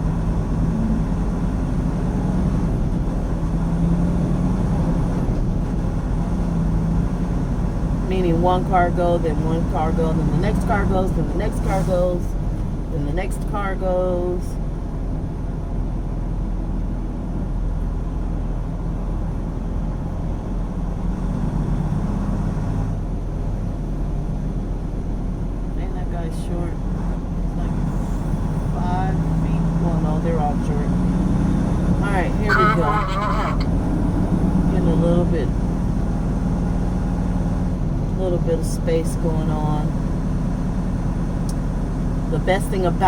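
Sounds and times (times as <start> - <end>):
road noise: 0.0 - 43.0
truck diesel engine rumbling: 0.0 - 43.0
truck diesel engine running: 26.4 - 43.0.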